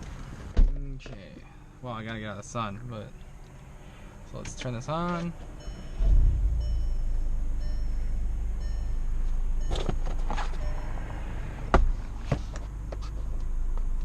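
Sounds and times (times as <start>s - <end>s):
car engine idling: 5.4s - 14.0s
high chime beeping: 5.6s - 11.2s.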